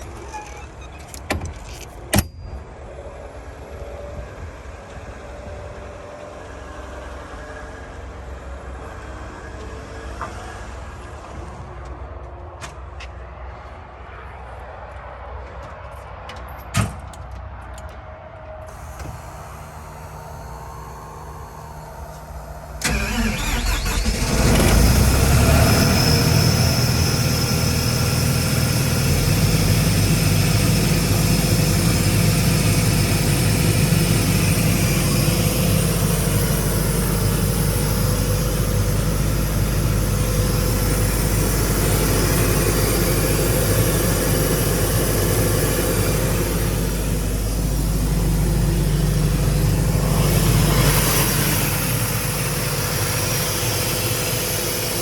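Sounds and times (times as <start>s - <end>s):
air compressor diesel engine running: 18.7s - 55.0s.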